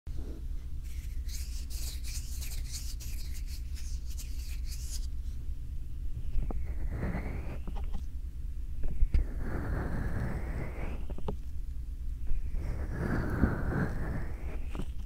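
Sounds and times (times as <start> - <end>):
steady low rumble: 0.1 - 15.0.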